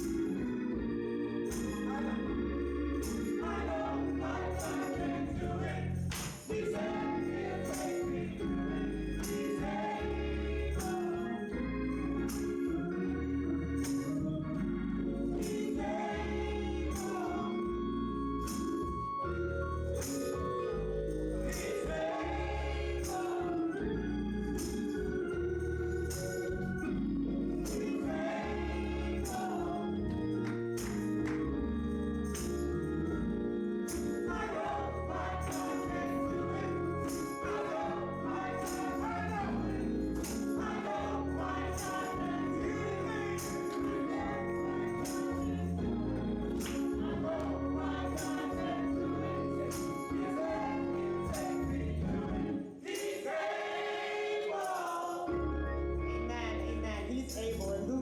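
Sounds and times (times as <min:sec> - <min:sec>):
group of voices singing: 0:01.5 - 0:12.6, 0:15.2 - 0:18.6, 0:21.4 - 0:24.8, 0:27.5 - 0:31.5, 0:33.8 - 0:55.6.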